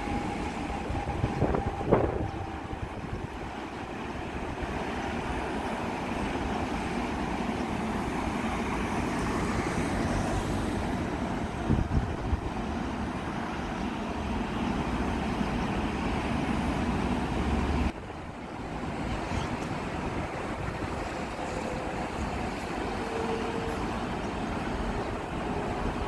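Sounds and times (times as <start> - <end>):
wind buffeting microphone: 0.0 - 5.6, 10.9 - 13.4
train wheels rumbling on track: 0.0 - 26.0.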